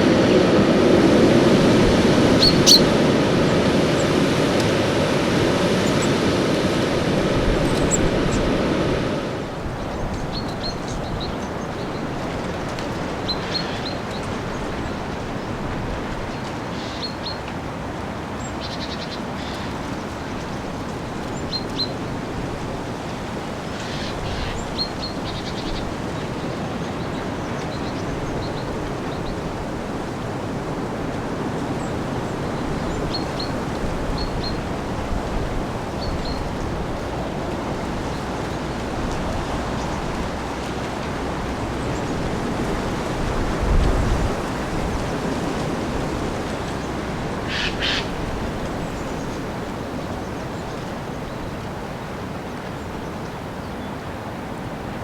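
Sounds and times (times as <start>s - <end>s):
rain: 0.0s - 55.0s
strong wind: 0.0s - 55.0s
small birds chirping: 2.4s - 2.9s, 44.5s - 51.6s.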